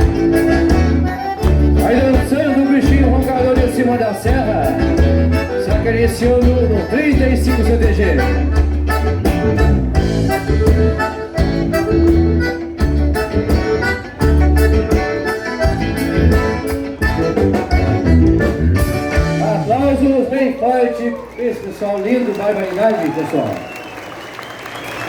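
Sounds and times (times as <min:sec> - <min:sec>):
accordion melody: 0:00.0 - 0:19.9
heavy bass: 0:00.0 - 0:20.3.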